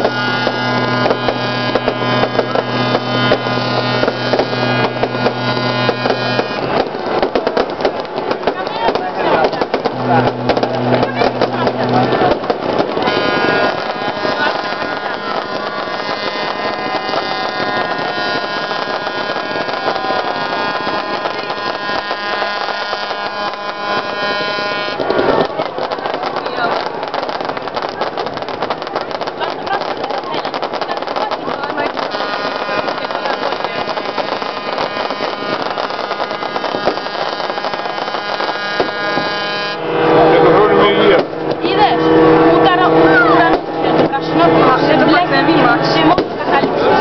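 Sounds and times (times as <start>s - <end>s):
dense noisy din: 0.0s - 47.0s
fireworks crackling and popping: 0.0s - 47.0s
many horns sounding: 0.0s - 47.0s
sustained tones: 0.0s - 47.0s
low hum: 9.6s - 25.1s.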